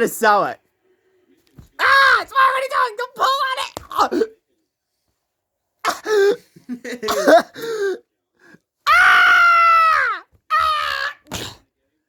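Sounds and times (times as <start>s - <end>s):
person screaming: 1.8s - 4.3s, 8.9s - 11.6s.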